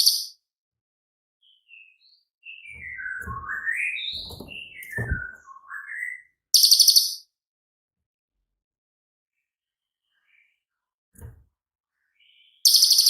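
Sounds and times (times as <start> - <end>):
rapid high bird trill: 6.6 - 7.2, 12.6 - 13.0.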